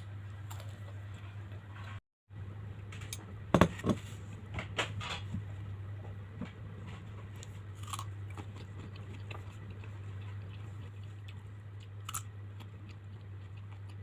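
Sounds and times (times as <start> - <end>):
low electrical hum: 0.0 - 14.0
biting and chewing crunches: 7.4 - 14.0.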